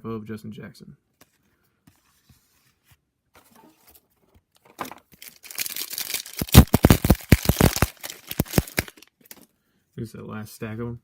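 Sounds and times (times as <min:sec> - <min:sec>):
foil wrapper tearing and crinkling: 0:05.1 - 0:09.5.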